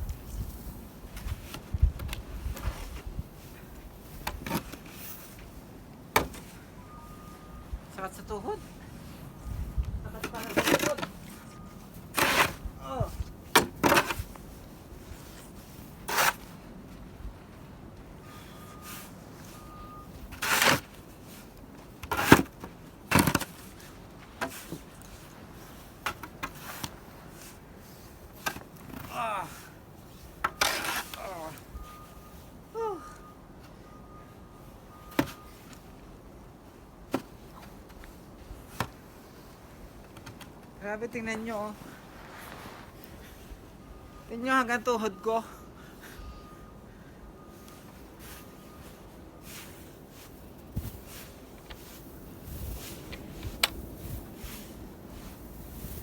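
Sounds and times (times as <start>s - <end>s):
shovel scraping snow: 10.2s - 12.7s, 15.0s - 16.6s, 20.2s - 21.5s, 30.2s - 31.7s, 41.5s - 43.5s, 48.2s - 56.0s.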